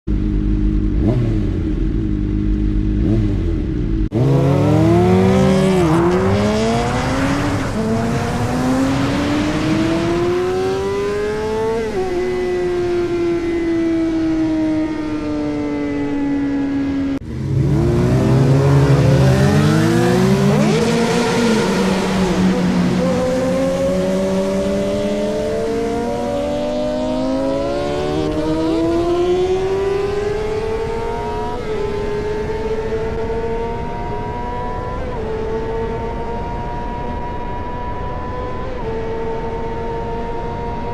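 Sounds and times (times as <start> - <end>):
sportbike engine: 0.1 - 6.1.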